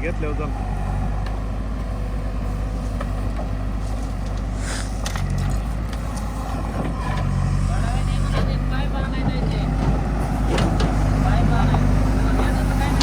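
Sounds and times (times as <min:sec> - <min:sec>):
tractor engine running: 0:00.0 - 0:13.0
short hiss: 0:03.8 - 0:05.2.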